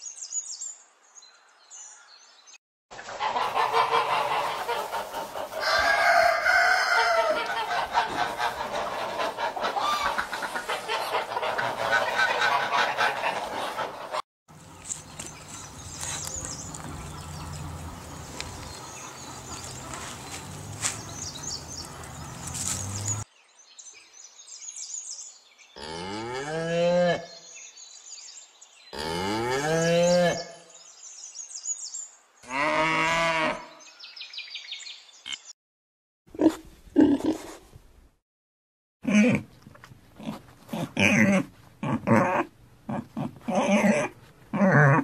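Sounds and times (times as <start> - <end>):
cows mooing: 29.0 - 30.5, 32.5 - 33.7.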